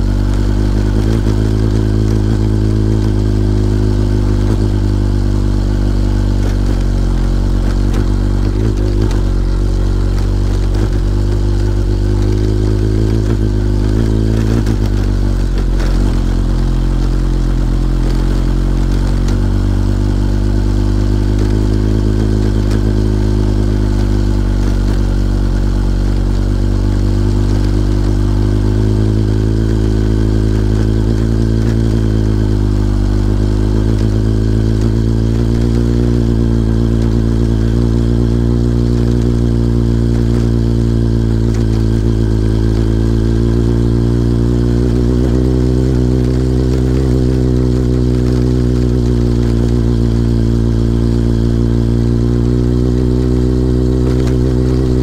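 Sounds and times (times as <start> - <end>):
motorcycle engine pulling uphill: 0.0 - 55.0.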